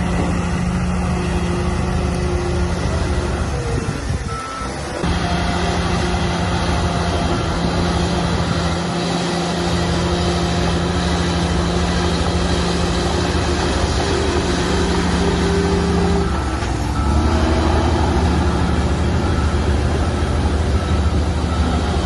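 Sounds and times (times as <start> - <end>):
heavy diesel engine rumbling: 0.0 - 22.0.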